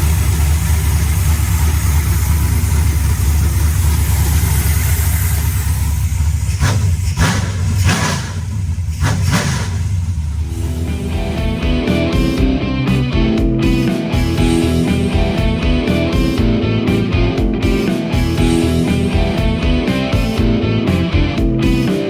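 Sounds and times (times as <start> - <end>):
pickup engine rumbling: 0.0 - 21.8
engine throttle blips: 0.0 - 21.9.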